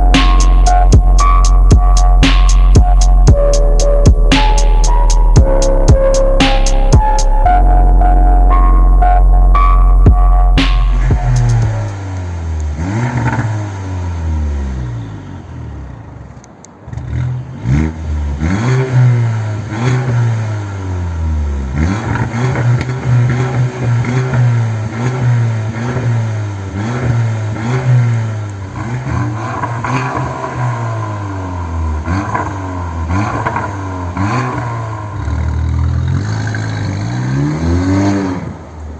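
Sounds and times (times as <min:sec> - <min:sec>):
car engine revving: 0:00.0 - 0:14.9.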